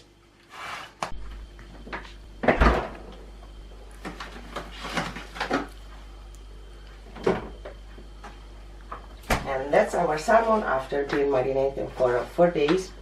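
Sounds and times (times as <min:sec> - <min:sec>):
refrigerator door thud: 0:02.4 - 0:03.0.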